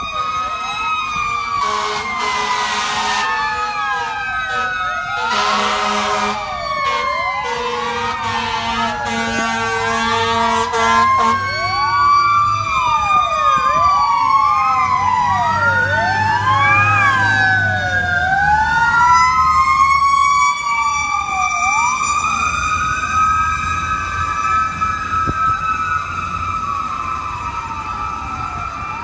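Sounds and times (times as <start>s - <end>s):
fire truck sirens wailing: 0.0s - 29.0s
truck engines rumbling: 0.0s - 29.0s
pulsing horn: 1.6s - 3.4s, 4.0s - 11.5s.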